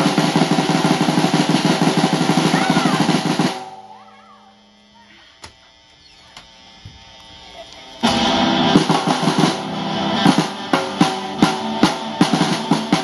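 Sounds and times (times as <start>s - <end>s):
fast drum roll on drum kit: 0.0s - 3.7s, 8.0s - 13.0s.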